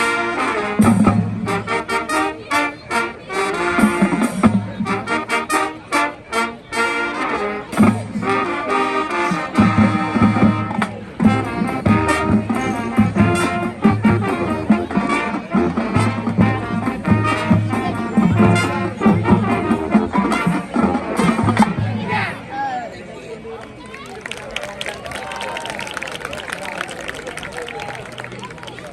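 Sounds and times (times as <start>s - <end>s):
brass section playing: 0.0s - 20.6s.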